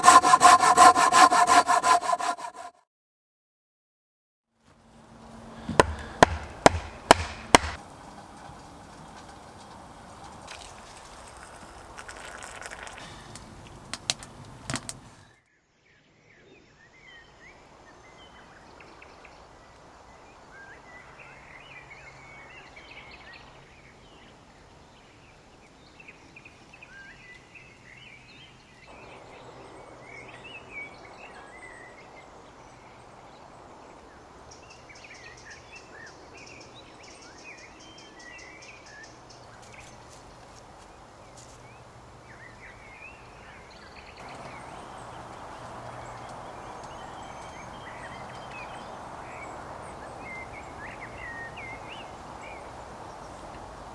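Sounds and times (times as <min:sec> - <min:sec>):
steady background hiss: 0:04.8 - 0:12.4, 0:28.7 - 0:53.9
small birds chirping: 0:05.2 - 0:15.3, 0:34.0 - 0:53.9
sharp knocks: 0:05.6 - 0:07.8.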